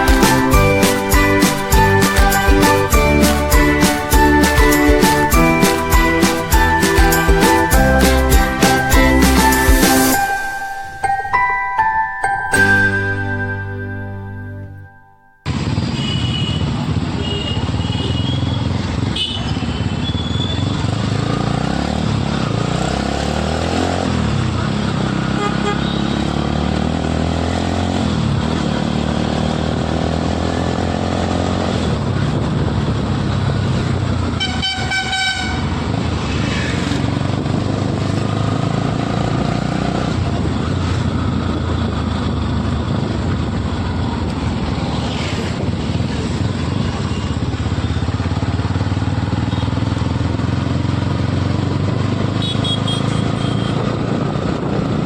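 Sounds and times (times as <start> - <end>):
road and wind noise: 0.0 - 55.0
motorcycle engine running: 15.4 - 36.1, 36.8 - 55.0
vehicle horn: 15.9 - 20.6, 25.3 - 26.3, 34.3 - 36.0, 52.4 - 53.9.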